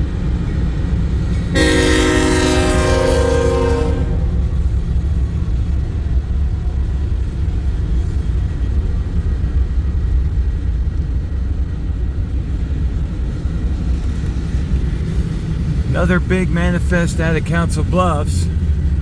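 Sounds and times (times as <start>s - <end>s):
diesel freight train rumble: 0.0s - 19.0s.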